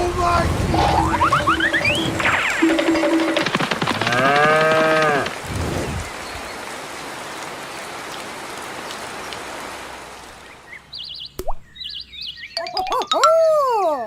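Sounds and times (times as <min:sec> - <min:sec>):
rain-like hiss: 0:00.0 - 0:02.6, 0:04.0 - 0:11.8.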